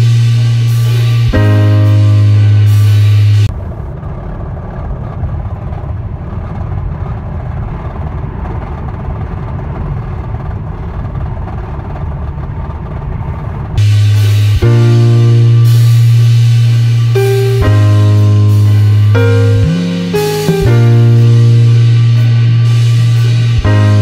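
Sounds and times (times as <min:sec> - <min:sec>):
music: 0:00.0 - 0:03.5, 0:13.8 - 0:24.0
car engine rough low rumble: 0:00.0 - 0:24.0.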